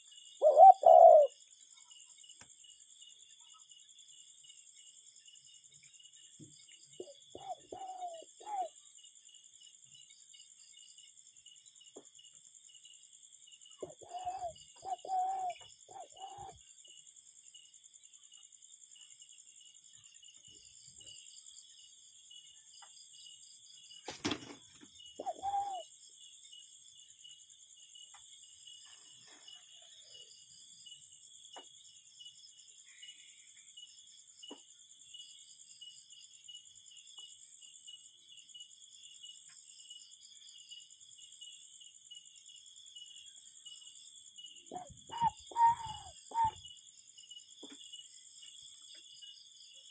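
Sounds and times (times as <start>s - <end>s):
cuckoo calling: 0.4s - 1.4s, 7.0s - 8.8s, 13.8s - 16.6s, 25.2s - 25.9s, 44.7s - 46.6s
insect chirring: 5.2s - 31.2s, 43.3s - 49.8s.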